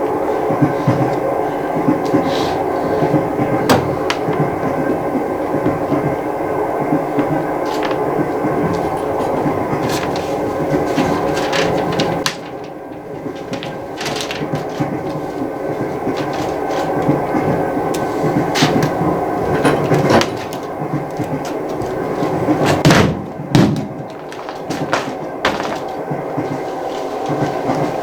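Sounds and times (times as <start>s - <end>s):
train rumbling and rattling: 0.0s - 28.0s
sharp knocks and thuds: 22.6s - 26.0s.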